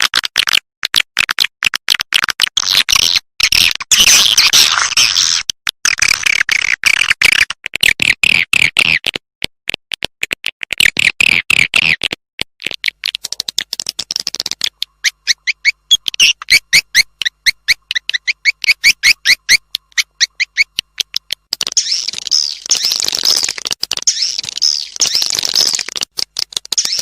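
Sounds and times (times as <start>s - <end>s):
swiftlet call chirps and clicks: 12.6s - 27.0s.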